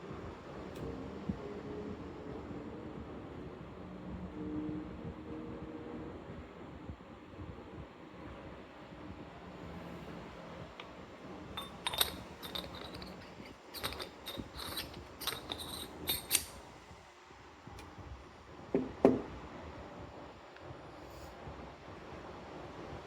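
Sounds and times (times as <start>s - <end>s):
metal grinder parts clinking: 11.6s - 16.6s.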